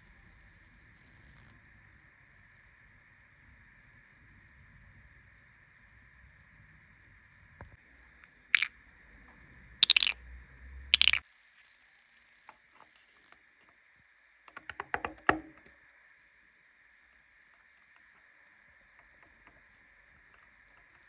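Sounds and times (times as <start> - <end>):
run of small ticks: 9.8 - 10.2, 11.0 - 11.2
sharp clicks and knocks: 9.8 - 10.2, 11.0 - 11.2, 14.6 - 15.7.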